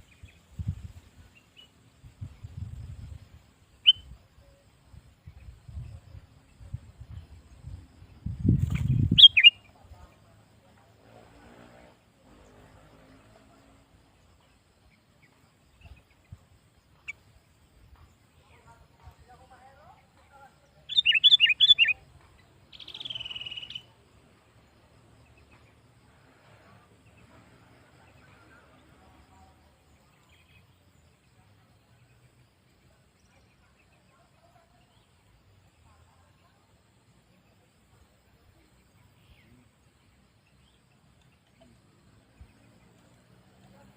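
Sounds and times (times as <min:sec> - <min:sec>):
bird chirping: 0:00.0 - 0:10.3, 0:12.4 - 0:26.1, 0:26.8 - 0:43.9
low steady background noise: 0:00.0 - 0:43.9
faint short bird chirps: 0:08.7 - 0:09.7.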